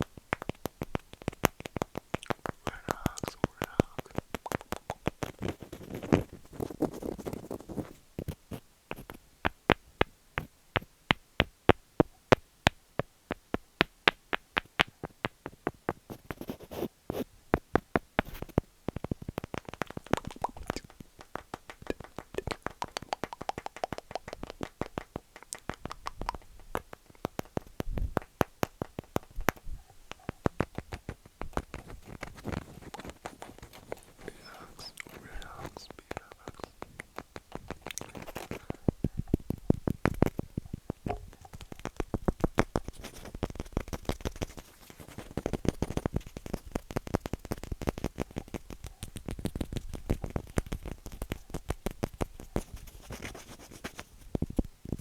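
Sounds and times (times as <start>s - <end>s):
scratching on wood: 30.1s - 38.8s.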